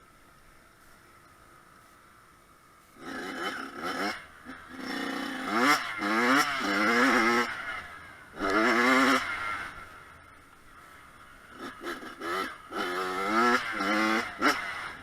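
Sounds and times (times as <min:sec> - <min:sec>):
motocross engine revving: 0:03.0 - 0:10.1, 0:11.2 - 0:15.0.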